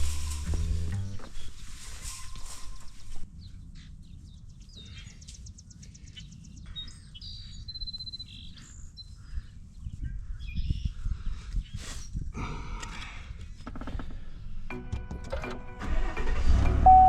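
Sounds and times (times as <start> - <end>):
low steady rumble: 0.0 - 1.5.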